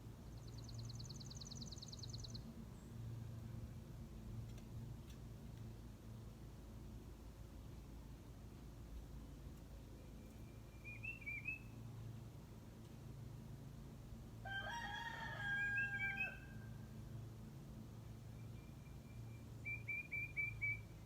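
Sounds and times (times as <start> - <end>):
steady low hum: 0.0 - 14.4
small bird chirping: 0.3 - 3.0, 10.0 - 11.8
rooster crowing: 14.4 - 16.9.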